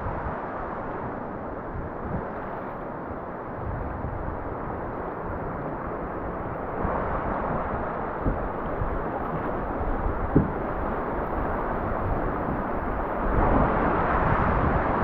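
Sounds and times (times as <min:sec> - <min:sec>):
rushing river water: 0:00.0 - 0:15.0
wind buffeting microphone: 0:00.0 - 0:15.0.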